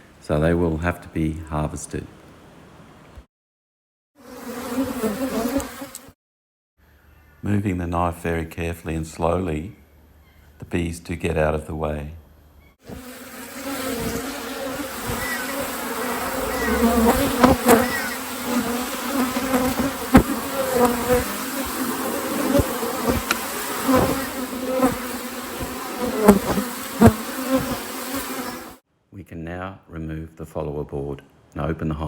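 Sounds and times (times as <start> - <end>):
bees buzzing: 4.2 - 6.2, 12.8 - 28.8.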